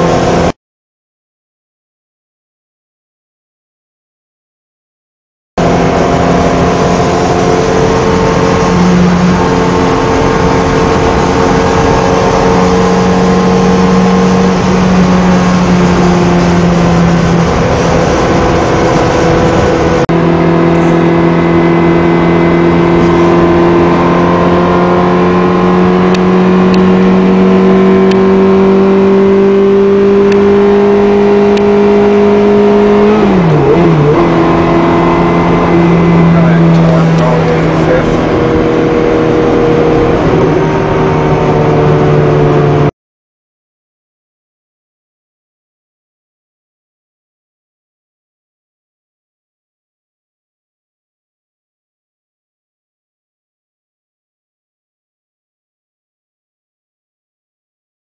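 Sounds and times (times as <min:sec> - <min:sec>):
car engine revving: 0:00.0 - 0:00.6, 0:05.6 - 0:42.9.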